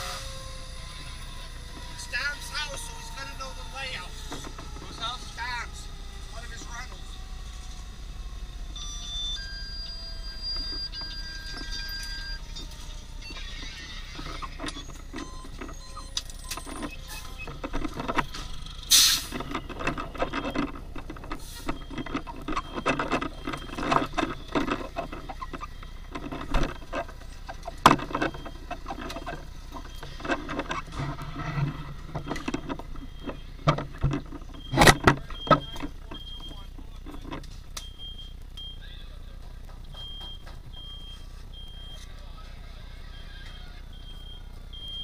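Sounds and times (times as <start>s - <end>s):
low engine rumble: 0.0s - 45.0s
gear knocking and clattering: 1.2s - 5.6s, 10.3s - 38.7s
muffled voices: 33.7s - 37.6s, 38.4s - 40.1s, 41.6s - 44.0s.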